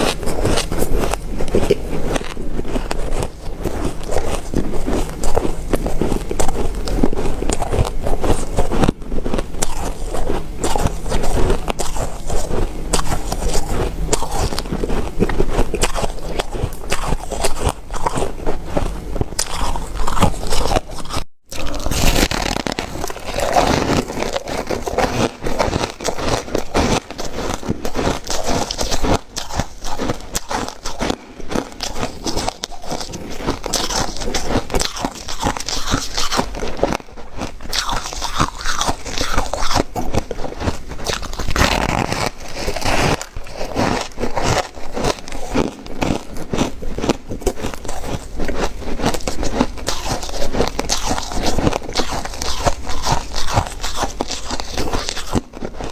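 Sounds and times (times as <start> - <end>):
chewing ice crunches: 0.0 - 55.9.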